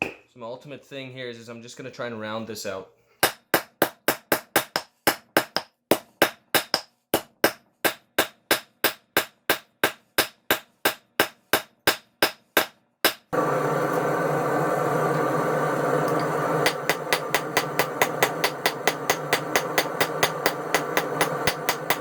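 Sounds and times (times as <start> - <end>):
hammer striking metal on anvil: 6.2 - 13.3, 16.1 - 22.0.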